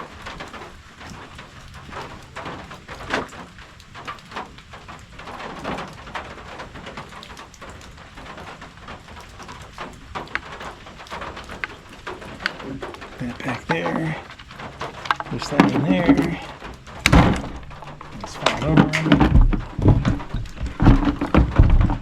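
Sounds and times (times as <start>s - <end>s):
sharp taps of raindrops: 0.0s - 22.0s
steady rain falling: 0.0s - 22.0s.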